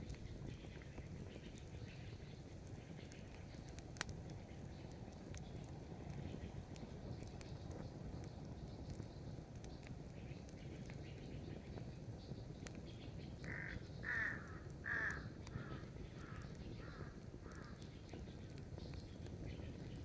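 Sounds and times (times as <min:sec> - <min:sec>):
bird calling: 0:13.1 - 0:18.2.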